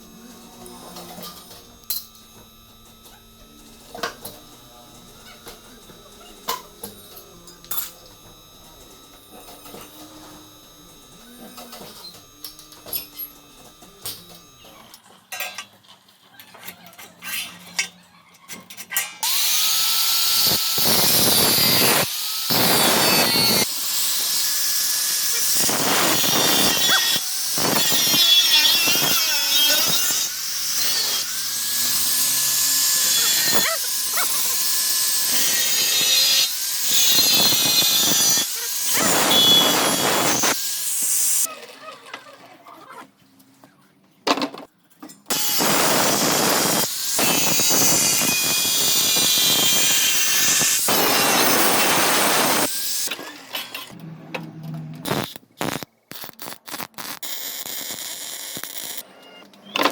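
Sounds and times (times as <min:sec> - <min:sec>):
power tool spinning: 0:00.0 - 0:15.1, 0:19.2 - 0:41.5, 0:45.3 - 0:54.0, 0:55.0 - 0:59.9.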